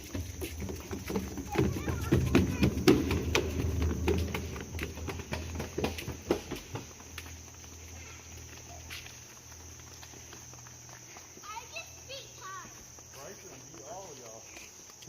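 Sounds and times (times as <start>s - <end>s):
footsteps crunching dry leaves: 0.0s - 15.0s.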